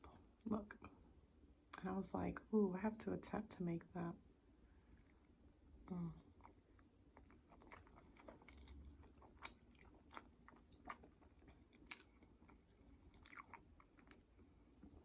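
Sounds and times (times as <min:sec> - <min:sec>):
close-mic chewing: 0:04.8 - 0:15.0.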